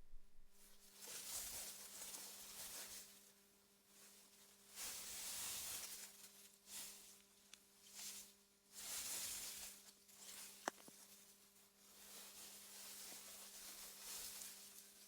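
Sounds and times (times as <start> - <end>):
faint low hum: 0.0 - 0.8.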